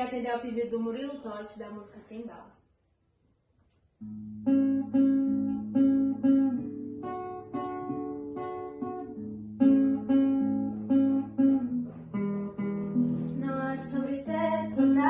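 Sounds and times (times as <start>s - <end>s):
acoustic guitar picking: 4.0s - 15.0s.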